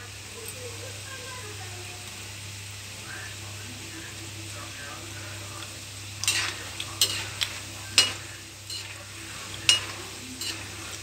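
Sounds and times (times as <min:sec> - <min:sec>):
peanuts sizzling in hot oil: 0:00.0 - 0:11.0
metal spoon scraping a pan: 0:06.2 - 0:11.0.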